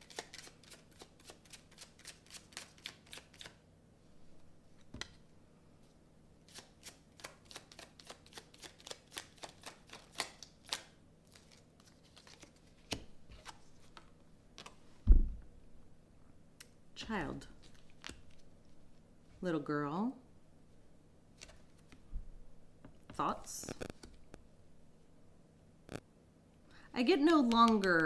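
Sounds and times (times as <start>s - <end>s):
cards being shuffled: 0.0s - 3.6s, 6.5s - 14.8s, 17.6s - 18.8s, 21.4s - 22.0s, 23.6s - 24.4s.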